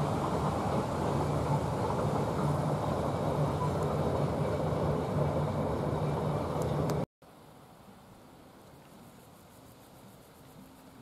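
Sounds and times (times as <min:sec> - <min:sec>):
train wheels rumbling on rails: 0:00.0 - 0:07.0.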